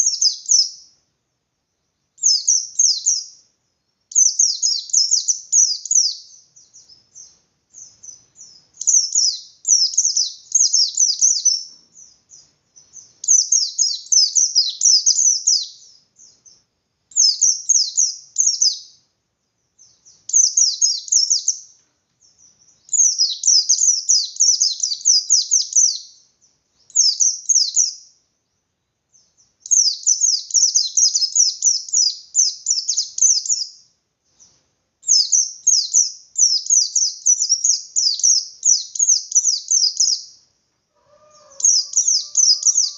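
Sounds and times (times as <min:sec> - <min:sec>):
white-eye bird singing: 0:00.0 - 0:01.0, 0:01.6 - 0:42.9.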